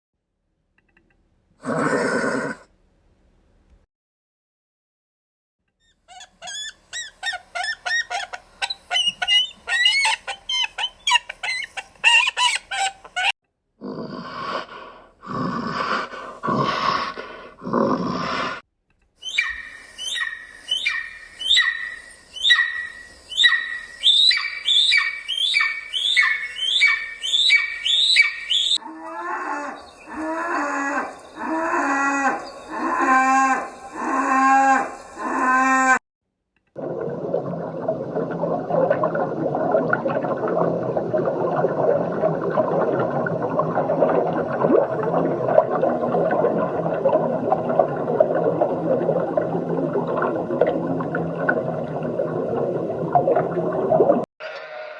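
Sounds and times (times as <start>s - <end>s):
high-pitched animal calls: 5.8s - 13.3s, 19.2s - 36.0s
lower downward-bending animal calls: 19.2s - 36.0s.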